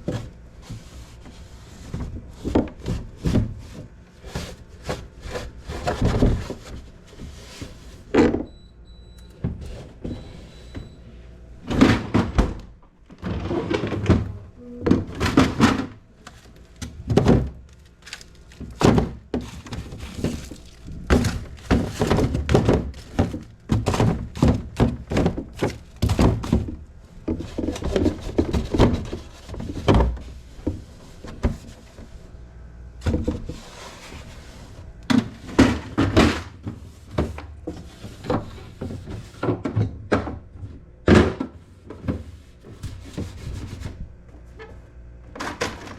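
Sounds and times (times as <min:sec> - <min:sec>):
shelves and containers clunking: 0:00.0 - 0:11.0, 0:11.6 - 0:45.9
refrigerator door opening and closing: 0:11.6 - 0:30.4, 0:35.1 - 0:45.9.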